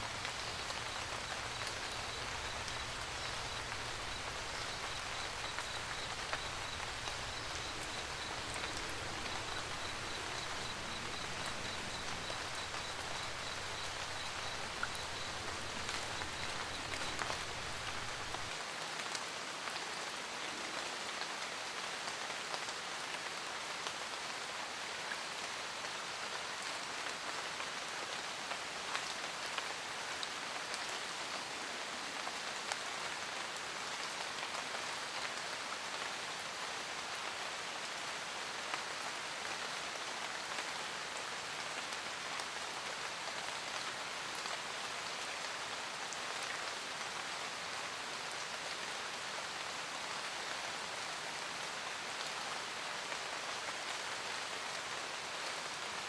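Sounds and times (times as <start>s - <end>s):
faint high pulsing chirp: 0.0s - 18.5s
rain pattering on a roof: 0.0s - 56.0s.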